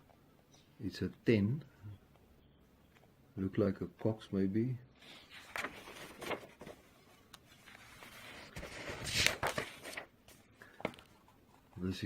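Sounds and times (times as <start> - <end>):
paper rustling: 5.0 - 11.8.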